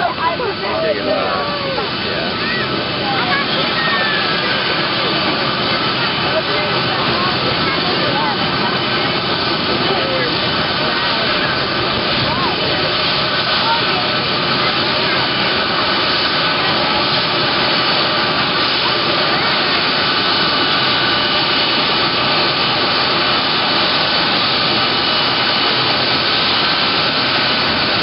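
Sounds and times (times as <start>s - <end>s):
high engine whine: 0.0s - 28.0s
jet engines roaring: 0.0s - 28.0s.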